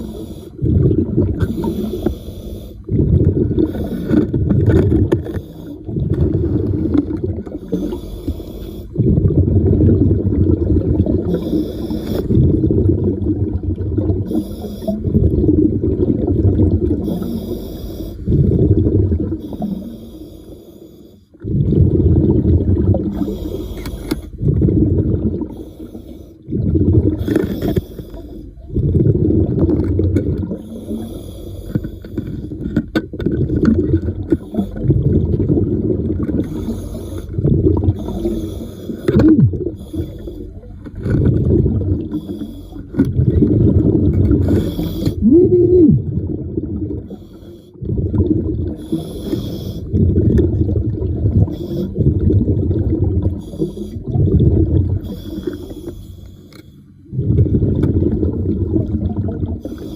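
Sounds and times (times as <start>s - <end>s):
bubbles from diver exhaling: 0.0s - 2.0s, 2.8s - 8.0s, 8.9s - 17.5s, 18.2s - 19.9s, 21.4s - 23.6s, 24.3s - 31.2s, 32.5s - 47.2s, 47.8s - 55.6s, 57.1s - 59.9s
regulator inhale hiss: 1.4s - 2.9s, 7.6s - 9.0s, 11.3s - 12.4s, 14.3s - 15.0s, 17.0s - 18.3s, 19.4s - 21.4s, 23.1s - 24.4s, 25.5s - 26.4s, 27.2s - 28.5s, 30.6s - 32.5s, 36.4s - 37.4s, 38.0s - 39.2s, 39.8s - 40.7s, 42.1s - 43.0s, 44.4s - 45.2s, 47.1s - 47.8s, 48.8s - 49.9s, 51.5s - 52.0s, 53.4s - 54.0s, 55.0s - 57.0s, 59.6s - 59.9s.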